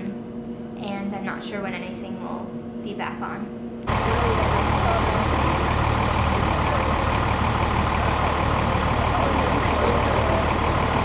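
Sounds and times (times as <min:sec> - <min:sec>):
large vehicle engine idling: 0:03.9 - 0:11.0.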